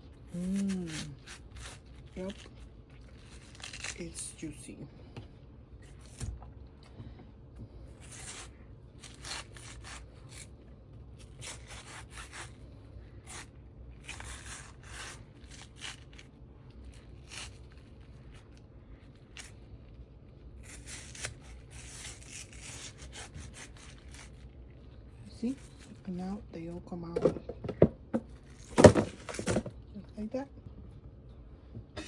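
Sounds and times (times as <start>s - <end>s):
knife cutting watermelon: 0.1s - 4.5s, 5.8s - 6.5s, 7.6s - 19.6s, 20.5s - 26.4s, 27.0s - 29.8s
knife scraping: 0.2s - 4.1s, 7.9s - 10.5s, 11.2s - 18.5s, 20.6s - 26.0s.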